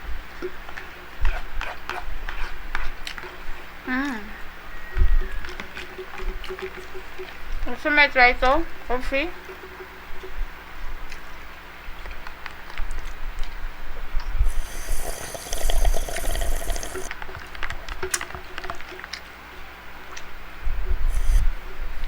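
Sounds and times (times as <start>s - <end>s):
drink being sipped: 14.4s - 17.1s, 21.1s - 21.6s.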